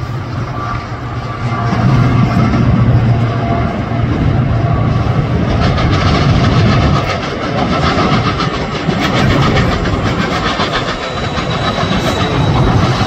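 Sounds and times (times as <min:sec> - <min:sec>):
locomotive engine running: 0:00.0 - 0:13.0
train wheels clicking over rail joints: 0:04.6 - 0:13.0.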